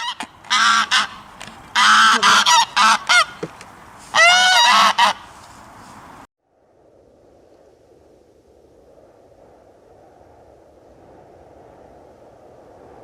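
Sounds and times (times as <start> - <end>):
geese honking: 0.0 - 5.3.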